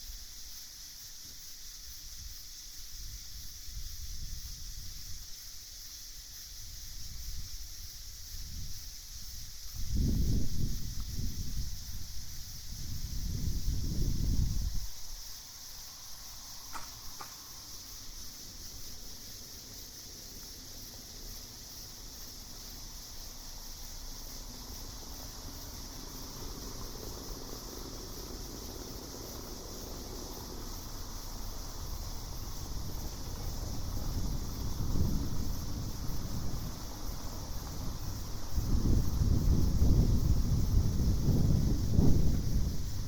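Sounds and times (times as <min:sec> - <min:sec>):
crickets chirping: 0:00.0 - 0:43.0.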